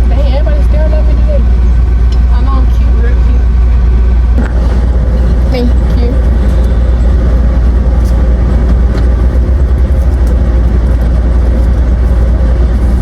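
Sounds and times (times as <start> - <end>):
car engine rumble inside cabin: 0.0 - 13.0.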